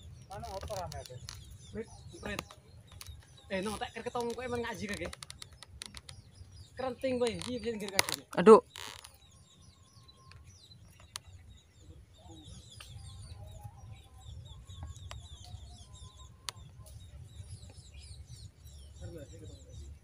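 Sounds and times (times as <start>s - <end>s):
small birds chirping: 0.0s - 20.0s
sharp clicks: 2.2s - 6.3s, 7.2s - 9.2s.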